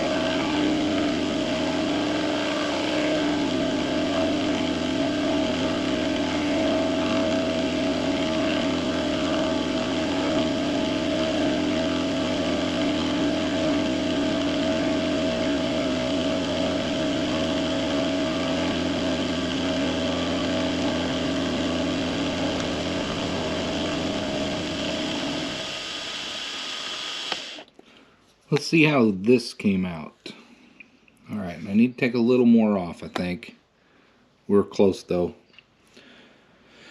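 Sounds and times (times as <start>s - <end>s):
milling machine running: 0.0s - 27.6s
milling machine winding down: 0.0s - 27.6s.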